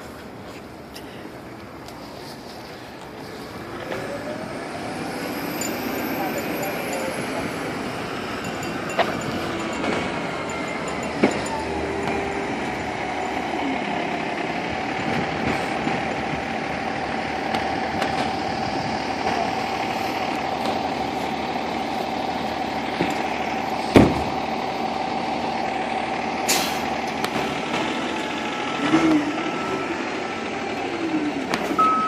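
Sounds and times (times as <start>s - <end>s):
diesel engine idling: 0.0s - 32.0s
steady tone: 5.2s - 14.9s, 31.8s - 32.0s.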